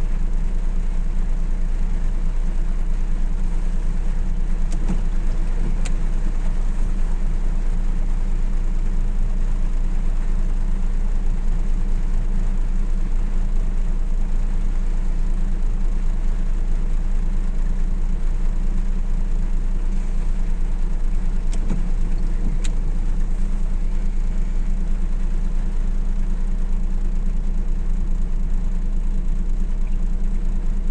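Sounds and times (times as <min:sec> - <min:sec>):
car interior rumble: 0:00.0 - 0:30.9
faint ticks: 0:04.7 - 0:06.0.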